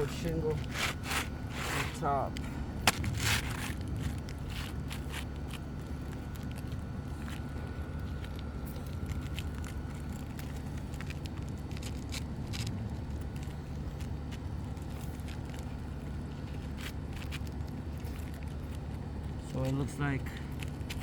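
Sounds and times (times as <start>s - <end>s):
low rumble: 1.4s - 14.0s.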